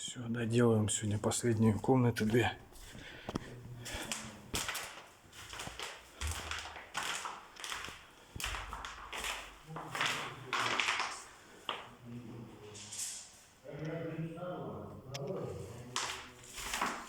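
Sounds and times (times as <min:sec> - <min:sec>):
wallpaper rustling and scraping: 0:01.6 - 0:13.6, 0:15.6 - 0:17.0.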